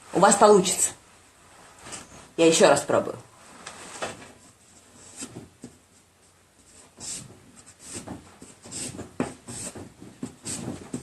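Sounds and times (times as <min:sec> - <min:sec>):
pencil strokes scratching paper: 0:06.6 - 0:11.0.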